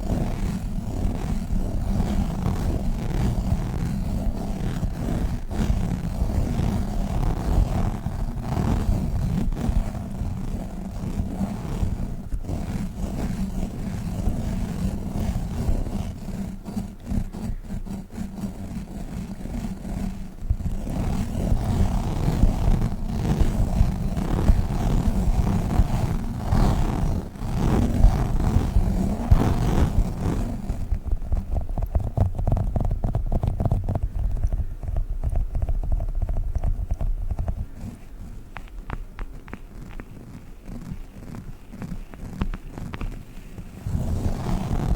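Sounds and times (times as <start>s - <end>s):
sticky taps: 38.5s - 43.2s.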